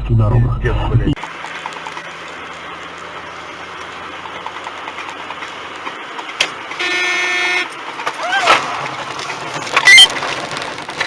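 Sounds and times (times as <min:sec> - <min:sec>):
car engine running: 0:00.0 - 0:11.0
road noise: 0:00.0 - 0:11.0
car horn: 0:06.7 - 0:07.8.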